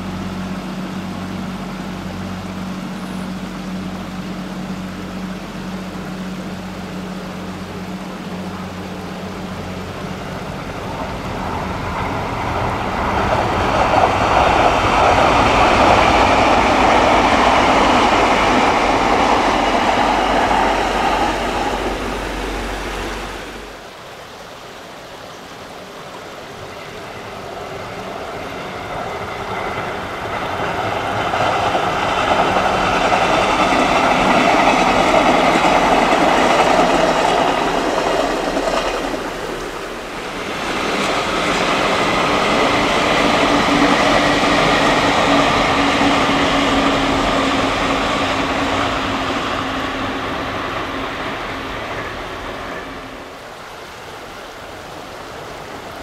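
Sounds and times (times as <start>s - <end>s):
steady low hum: 0.0s - 23.9s
electric train running past: 0.0s - 56.0s.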